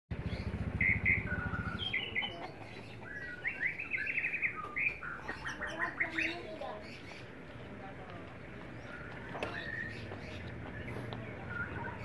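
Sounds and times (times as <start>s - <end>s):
low rapid pulsing hum: 0.1s - 3.6s
small birds chirping and singing: 0.1s - 12.0s
bird trill: 0.2s - 7.3s.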